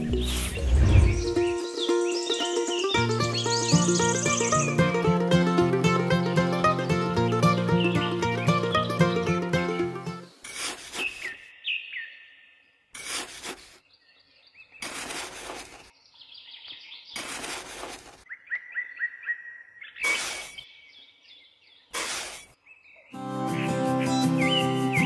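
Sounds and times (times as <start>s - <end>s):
birds chirping: 0.0s - 12.9s, 13.6s - 25.0s
hand scoop scraping sand: 10.4s - 11.4s, 13.0s - 13.8s, 14.8s - 15.9s, 17.2s - 18.2s, 20.0s - 20.6s, 21.9s - 22.6s.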